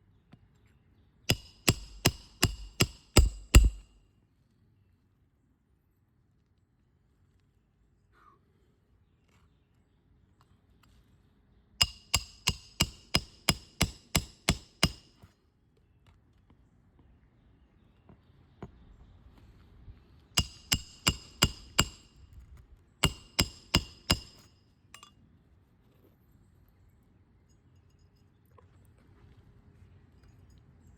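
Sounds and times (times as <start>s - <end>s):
hammer striking metal: 1.3s - 4.0s, 11.8s - 15.1s, 20.4s - 22.1s, 23.0s - 25.1s.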